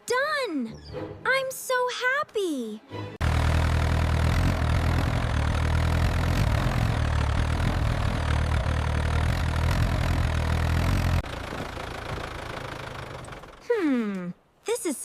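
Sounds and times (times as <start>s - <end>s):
tractor engine droning: 3.2s - 13.8s.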